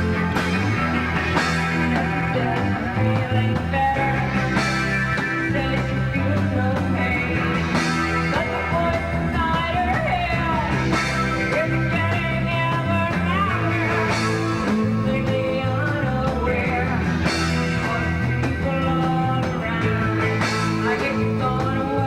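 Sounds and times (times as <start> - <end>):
bass guitar: 0.0 - 22.0
drums: 0.0 - 22.0
electric guitar: 0.0 - 22.0.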